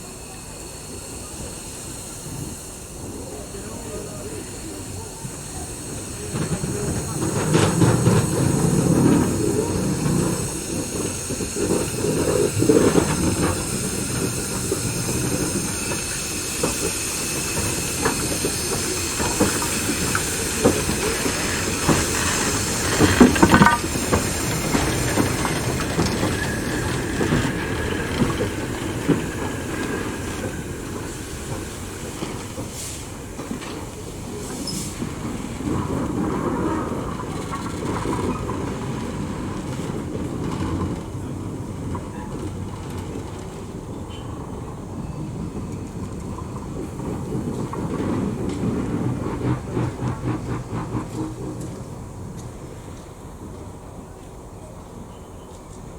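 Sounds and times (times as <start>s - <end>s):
steam hissing: 0.0s - 55.3s
train wheels clattering: 0.0s - 55.9s
knocks from train: 6.3s - 16.9s, 17.6s - 33.9s.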